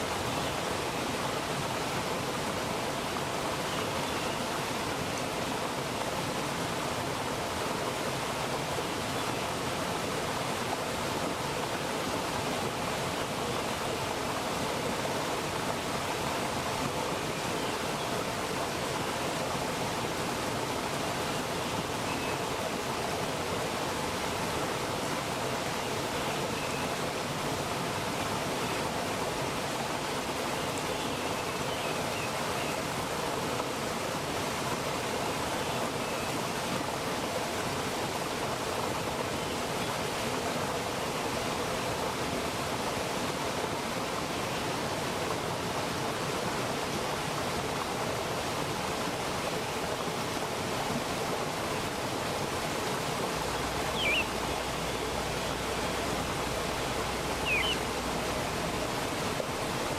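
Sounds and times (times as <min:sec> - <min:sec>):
stream rushing over rocks: 0:00.0 - 0:59.9
bird chirps: 0:54.0 - 0:54.3, 0:57.4 - 0:57.8.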